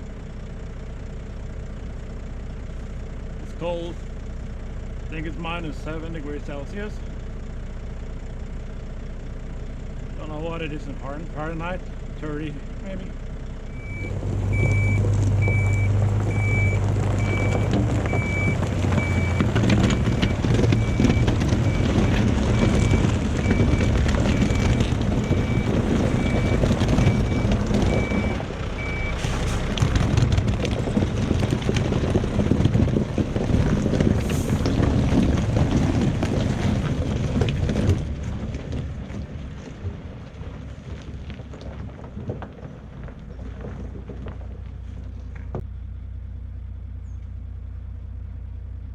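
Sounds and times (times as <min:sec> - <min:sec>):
heavy diesel machine rumbling: 0:00.0 - 0:48.9
reversing alarm beeping: 0:13.7 - 0:29.5.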